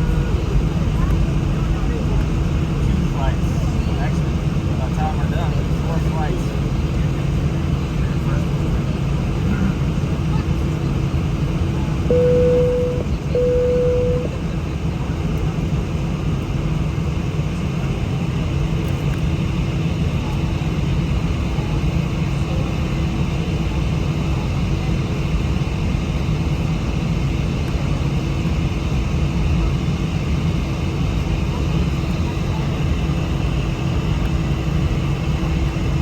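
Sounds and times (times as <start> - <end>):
jet airliner cabin rumble: 0.0 - 36.0
short steady tones: 12.1 - 14.3.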